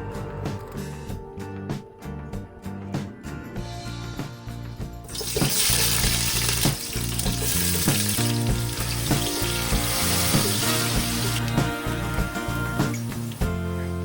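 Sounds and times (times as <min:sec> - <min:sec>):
background music with steady beat: 0:00.0 - 0:14.0
food sizzling in hot oil: 0:05.1 - 0:13.5.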